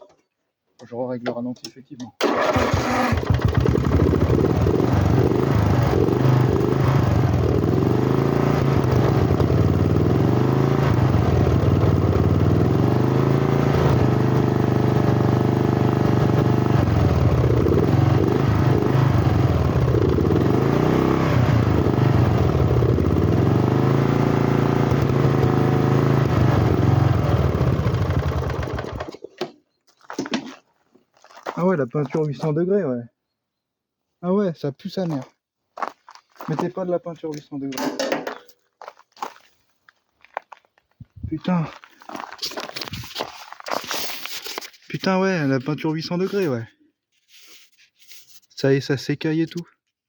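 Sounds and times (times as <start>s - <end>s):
lawn tractor engine running: 2.2s - 29.4s.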